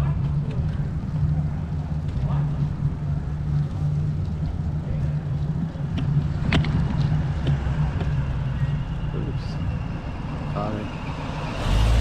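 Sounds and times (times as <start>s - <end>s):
wind and road rumble: 0.0s - 12.0s.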